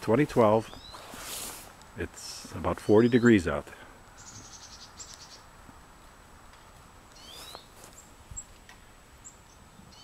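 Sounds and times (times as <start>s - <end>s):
chickadees calling faintly: 4.1s - 5.5s, 7.1s - 8.6s.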